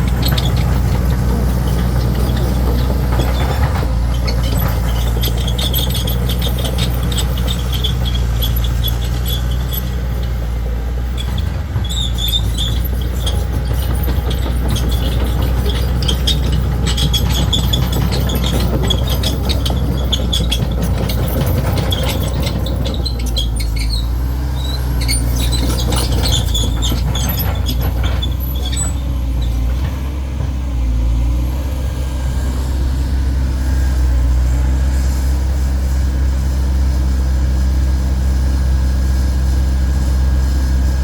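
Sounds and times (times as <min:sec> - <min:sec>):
diesel engine running: 0:00.0 - 0:41.0
high-pitched squeaks and clinks: 0:00.1 - 0:10.4, 0:11.2 - 0:29.1.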